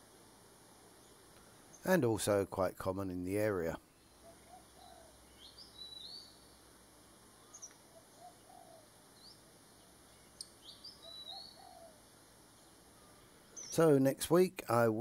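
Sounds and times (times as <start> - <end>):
birds chirping: 3.7 - 14.0.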